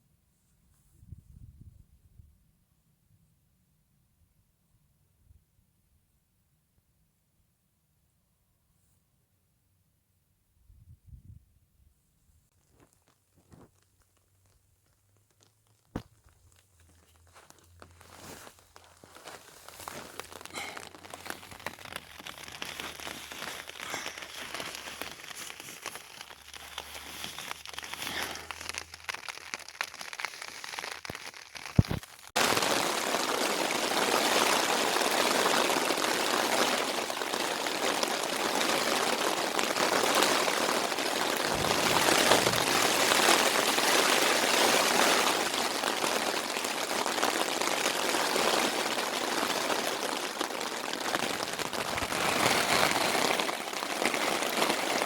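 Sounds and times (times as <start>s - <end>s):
faint scattered crackles: 12.5s - 55.0s
heavy rain falling: 19.0s - 55.0s.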